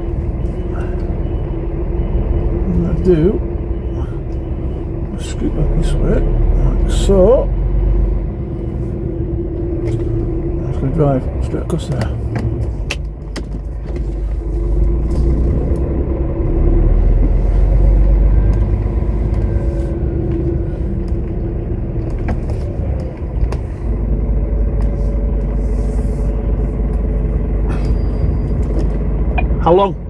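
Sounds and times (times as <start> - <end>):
lorry diesel engine rumbling: 0.0 - 30.0.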